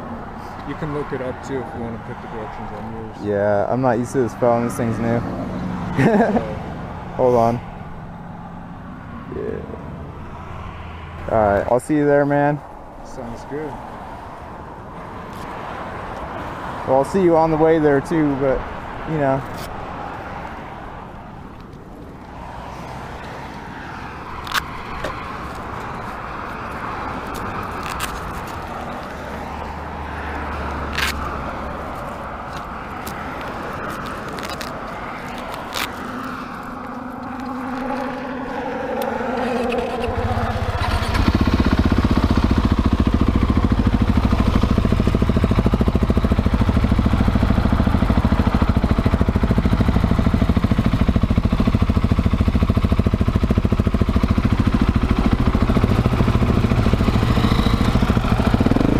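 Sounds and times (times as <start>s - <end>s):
street background noise: 0.0s - 58.9s
motorcycle engine running: 36.5s - 58.9s.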